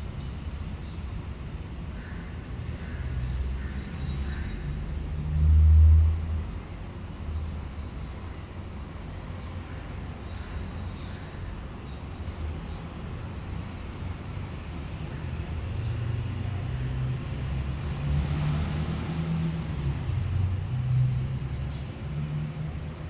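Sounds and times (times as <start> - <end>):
vehicle engine rumble: 12.2 - 23.0.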